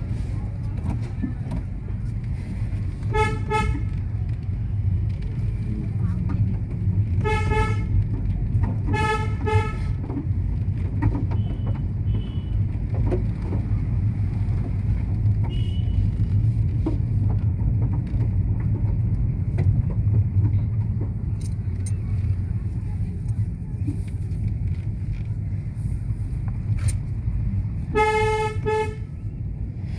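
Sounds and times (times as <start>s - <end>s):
vehicle engine low rumble: 0.0s - 29.9s
car horn honking: 3.0s - 4.0s, 7.2s - 8.0s, 8.9s - 10.0s, 11.4s - 12.6s, 27.9s - 29.2s.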